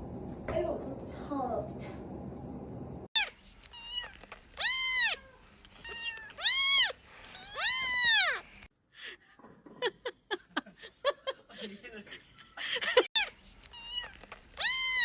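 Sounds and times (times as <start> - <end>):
cat meowing: 3.7 - 8.4, 13.7 - 15.0.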